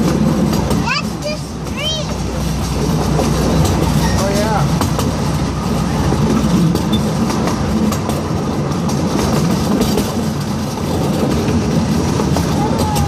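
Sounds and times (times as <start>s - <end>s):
train wheels rumbling on rail: 0.0s - 13.0s
wheels clicking over rail joints: 0.0s - 13.0s.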